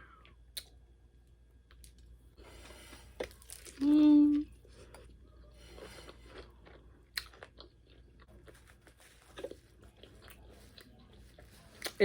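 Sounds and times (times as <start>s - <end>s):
person chewing crispy food: 1.6s - 12.0s.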